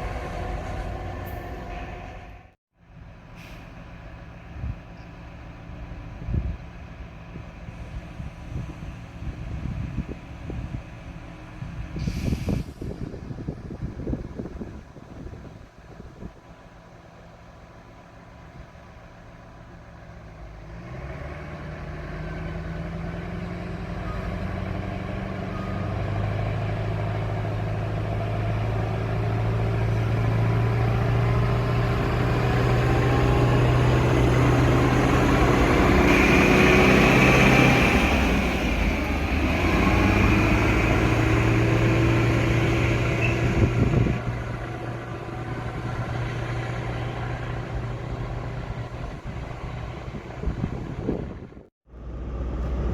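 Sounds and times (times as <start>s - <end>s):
train passing: 0.0s - 2.6s, 24.4s - 51.5s
engine hum: 0.0s - 52.9s.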